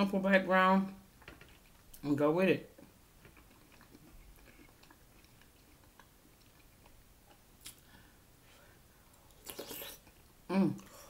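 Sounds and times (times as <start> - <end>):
chewing soup: 1.2 - 2.0, 2.8 - 8.0.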